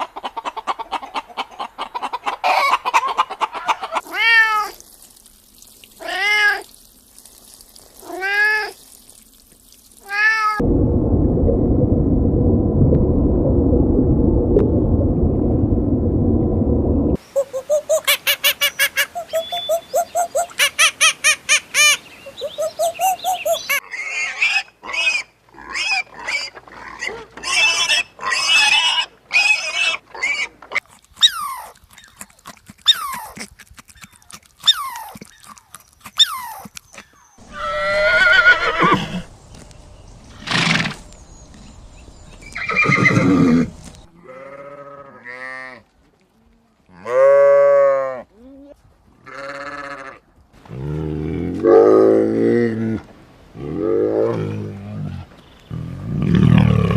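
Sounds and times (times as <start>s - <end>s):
pitched animal calls: 17.2s - 39.3s
rough animal calls: 17.3s - 45.8s
animal chirps: 17.4s - 21.2s, 21.8s - 23.8s, 32.8s - 39.3s
animal cries: 37.4s - 39.3s, 42.6s - 45.8s, 49.3s - 50.2s.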